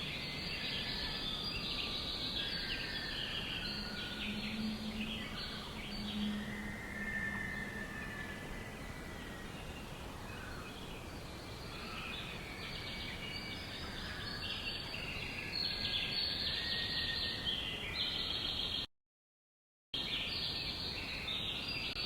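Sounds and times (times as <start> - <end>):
songbirds chirping and trilling: 0.0 - 18.9, 20.0 - 22.0
steady outdoor hiss: 0.0 - 18.9, 20.0 - 22.0.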